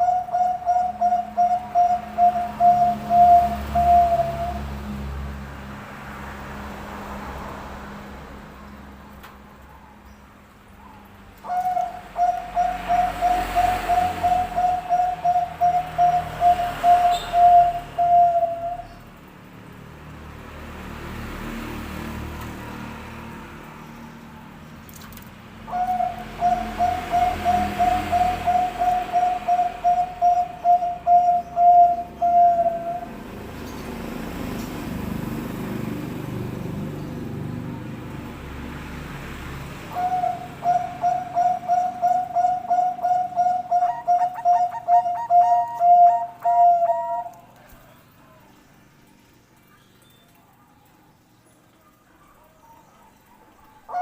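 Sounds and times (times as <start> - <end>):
dove cooing: 0.0 - 4.7, 10.9 - 19.0, 25.6 - 33.2, 39.9 - 48.4, 52.3 - 54.0.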